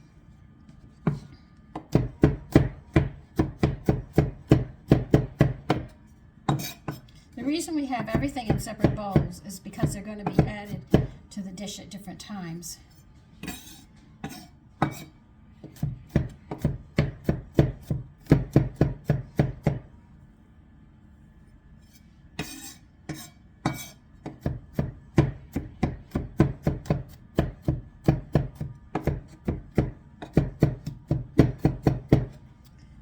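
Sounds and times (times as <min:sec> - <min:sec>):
knife chopping on cutting board: 0:01.0 - 0:07.1, 0:08.1 - 0:11.2, 0:13.4 - 0:19.8, 0:22.4 - 0:32.4.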